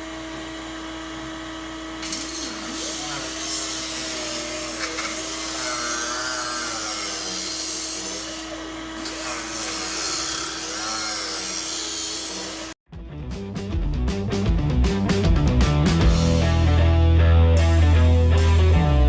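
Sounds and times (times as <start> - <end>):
power tool whining: 0.0 - 12.8.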